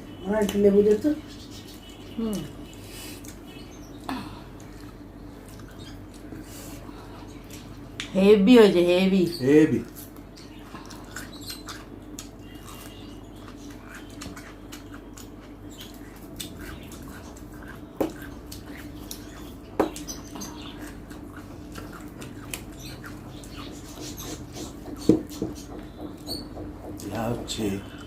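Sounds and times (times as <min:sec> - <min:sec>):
steady low hum: 0:00.0 - 0:28.0
wet chewing and lip smacks: 0:02.6 - 0:03.6, 0:04.6 - 0:06.5, 0:10.0 - 0:25.7
sharp knocks: 0:24.6 - 0:27.6.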